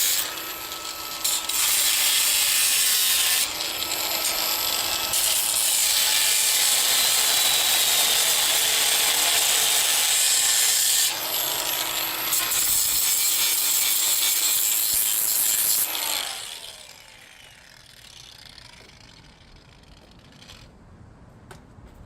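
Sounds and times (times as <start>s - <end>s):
power tool cutting: 0.0s - 20.6s
tool winding down whine: 15.6s - 20.7s.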